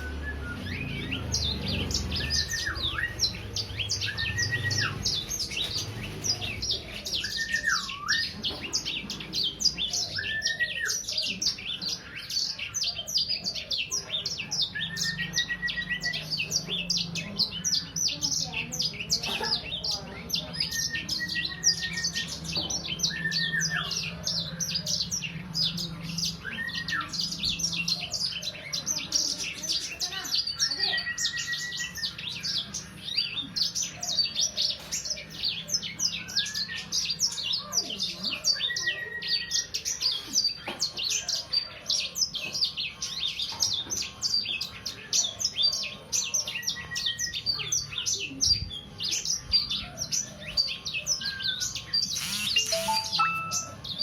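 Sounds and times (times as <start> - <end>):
songbird chattering: 49.2 - 54.0.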